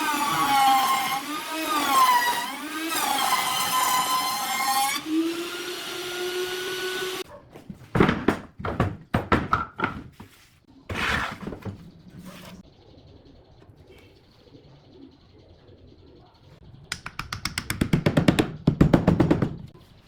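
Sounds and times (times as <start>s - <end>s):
knocks and clatters: 7.6s - 12.6s.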